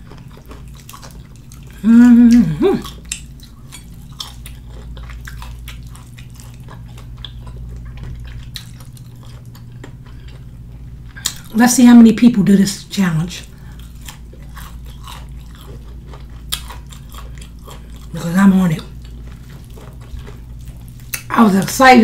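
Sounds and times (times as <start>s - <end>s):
chewing with wet smacking: 0.0s - 11.6s, 13.4s - 21.8s
person humming mmm: 1.7s - 3.0s.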